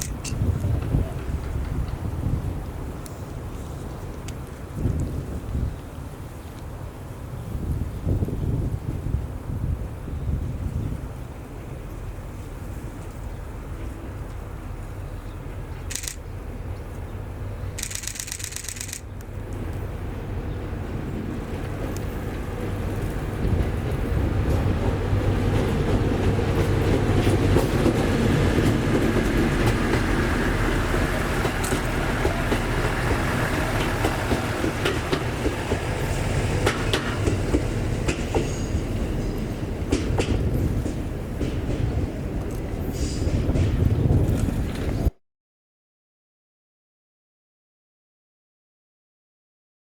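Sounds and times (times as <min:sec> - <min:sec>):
sharp rail clicks: 0:00.0 - 0:02.1, 0:15.8 - 0:16.3, 0:17.7 - 0:19.8, 0:25.4 - 0:45.0
train wheels rumbling on rails: 0:00.0 - 0:45.2.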